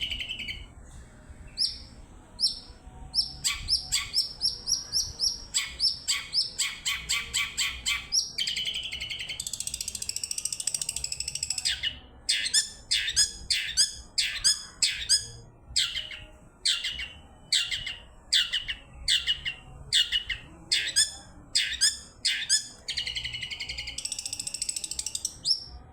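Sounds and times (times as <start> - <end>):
shrike singing: 0.0 - 25.9
harsh buzzy bird chattering: 3.2 - 16.0.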